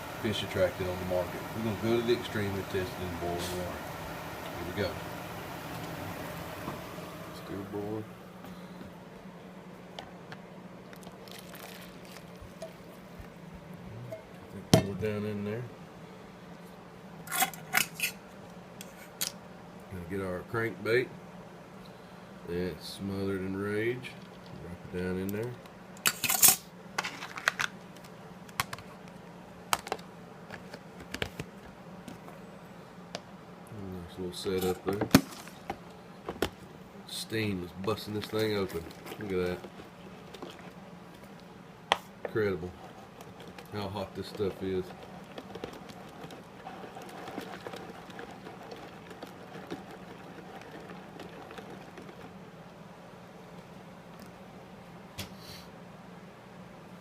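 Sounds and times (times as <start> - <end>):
water boiling in a pot: 0.0 - 8.4, 10.7 - 15.0, 34.0 - 54.0
steady low hum: 0.0 - 27.0, 27.7 - 57.0.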